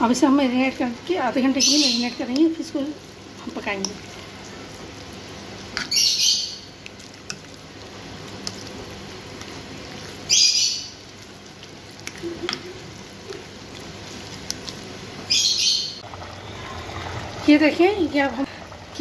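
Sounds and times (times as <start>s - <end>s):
bird chirping: 15.3s - 16.0s.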